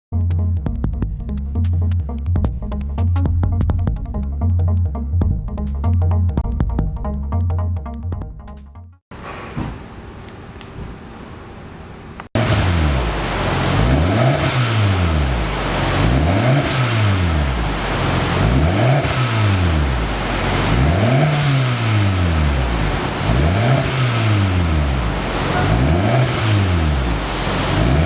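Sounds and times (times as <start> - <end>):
car engine revving: 12.4 - 28.0.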